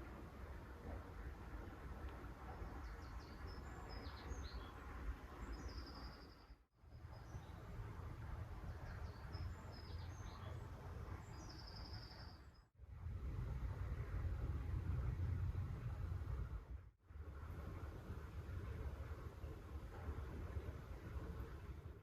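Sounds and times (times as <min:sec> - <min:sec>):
songbird singing with fast trill: 0:02.8 - 0:04.8, 0:08.8 - 0:12.7
steady low rumble: 0:12.7 - 0:22.0.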